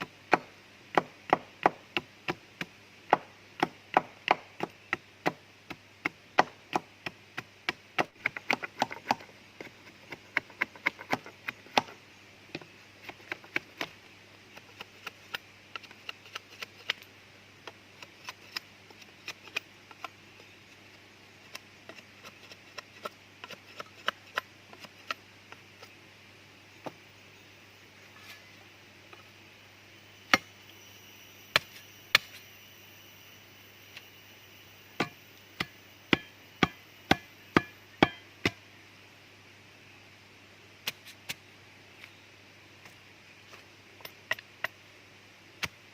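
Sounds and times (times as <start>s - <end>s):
blade chopping wood: 3.1s - 5.4s.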